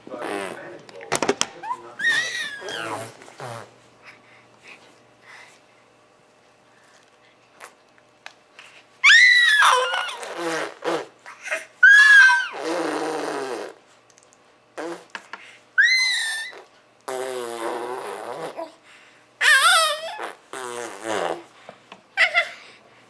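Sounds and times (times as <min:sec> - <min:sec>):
baby squealing: 0:01.6 - 0:03.1, 0:09.0 - 0:12.9, 0:15.8 - 0:16.7, 0:19.4 - 0:20.4
baby blowing raspberries: 0:02.0 - 0:03.7, 0:09.4 - 0:13.8, 0:14.8 - 0:18.8, 0:19.4 - 0:21.6.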